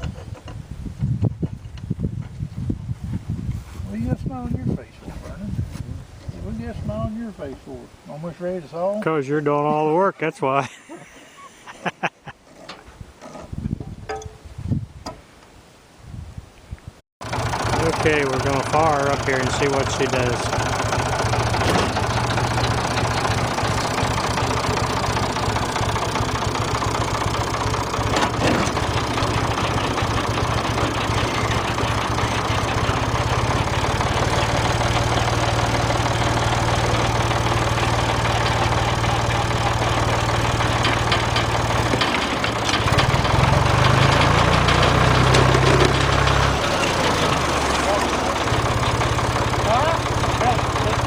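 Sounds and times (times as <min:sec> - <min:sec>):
sawmill engine running: 0:17.2 - 0:51.0.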